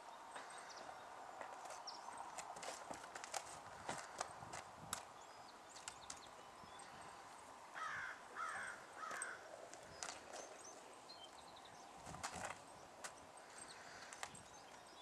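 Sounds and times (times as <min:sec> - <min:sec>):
horse hooves stepping on dirt: 0:00.3 - 0:05.1, 0:12.0 - 0:14.9
bird calling: 0:05.2 - 0:11.7.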